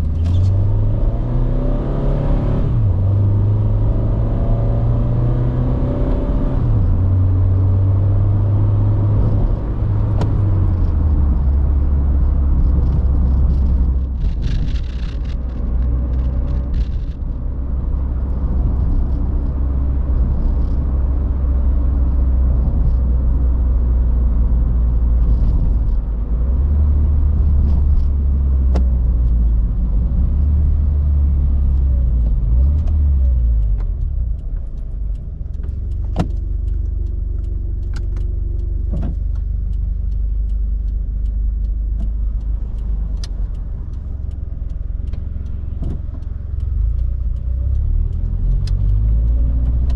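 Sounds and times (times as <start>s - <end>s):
car engine deep rumble: 0.0s - 49.9s
sharp clicks: 31.6s - 49.9s.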